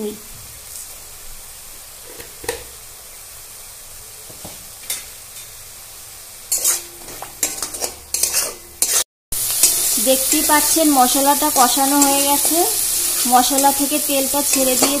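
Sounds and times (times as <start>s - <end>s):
paste sizzling in oil: 0.3s - 15.0s
spatula scraping a pan: 6.5s - 10.4s, 12.0s - 13.8s.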